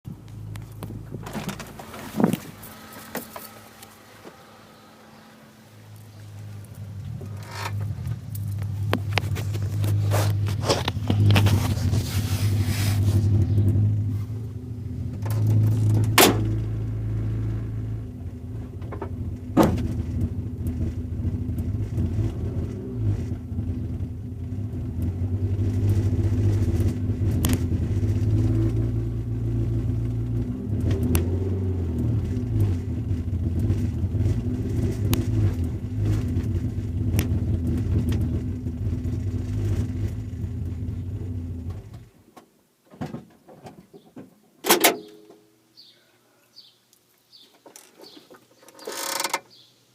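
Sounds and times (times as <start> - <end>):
subwoofer low hum: 0.1 - 42.1
sharp pops and crackles: 5.9 - 12.0, 26.7 - 28.8, 34.8 - 38.3.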